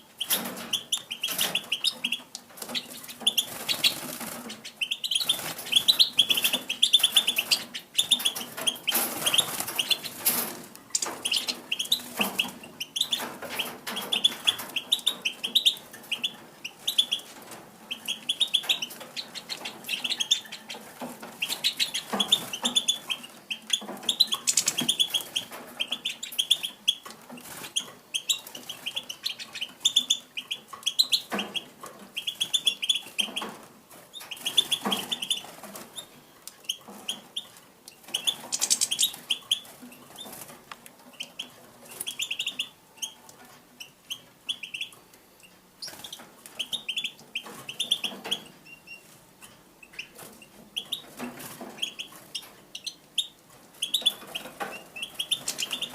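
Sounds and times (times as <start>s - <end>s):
finches chirping: 0.2s - 10.2s, 10.9s - 17.3s, 17.9s - 27.0s, 34.2s - 40.3s, 41.1s - 43.2s, 51.8s - 55.9s.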